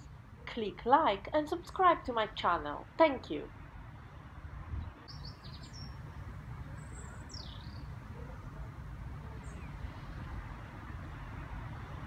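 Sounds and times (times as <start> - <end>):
small birds chirping: 4.8 - 10.4.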